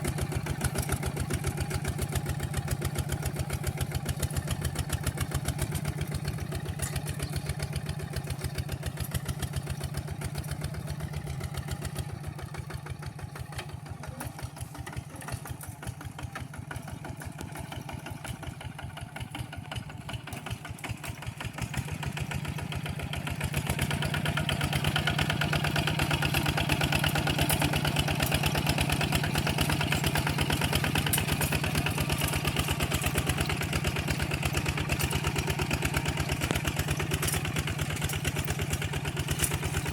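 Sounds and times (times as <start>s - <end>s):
tractor engine chugging: 0.0s - 39.9s.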